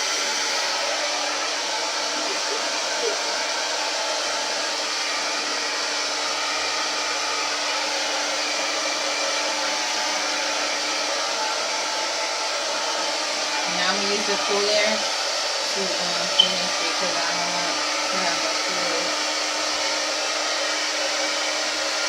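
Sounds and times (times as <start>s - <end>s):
hair dryer blowing air: 0.0s - 22.0s.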